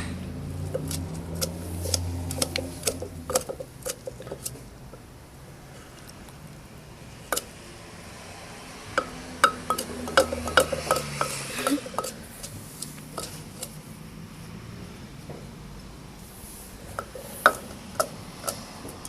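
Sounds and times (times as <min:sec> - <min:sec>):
pestle striking mortar: 0:00.6 - 0:04.6, 0:09.0 - 0:12.2.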